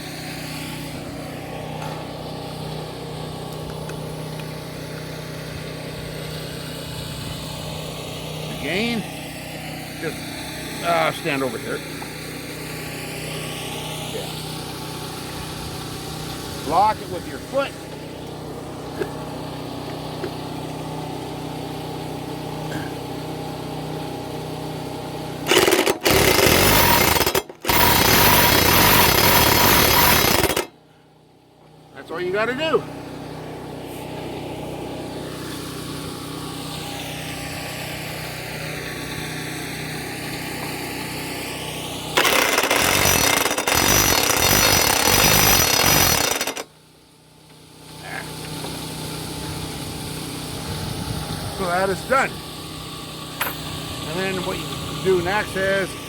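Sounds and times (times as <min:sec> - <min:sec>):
vehicle engine humming: 0:00.0 - 0:41.2, 0:47.5 - 0:56.0
impact wrench hammering: 0:25.5 - 0:30.7, 0:42.2 - 0:46.7, 0:53.4 - 0:53.8.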